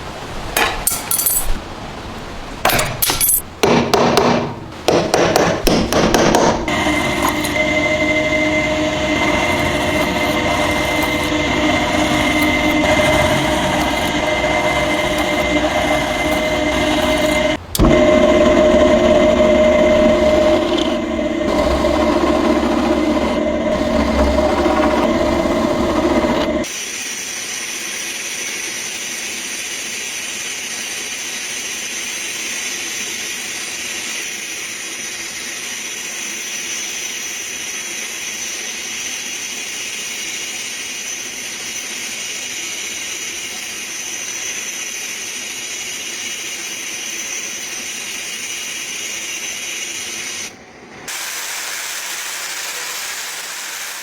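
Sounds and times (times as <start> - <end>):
motor humming: 5.6 - 26.7
thin high whine: 6.3 - 26.7.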